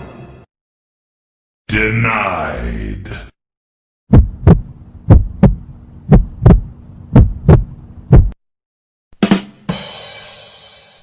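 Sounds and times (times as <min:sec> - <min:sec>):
heartbeat double thumps: 0:04.1 - 0:08.4.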